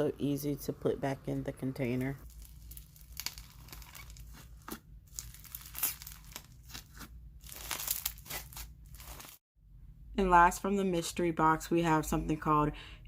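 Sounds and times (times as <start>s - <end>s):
crunchy slime crackling and popping: 2.2s - 9.4s.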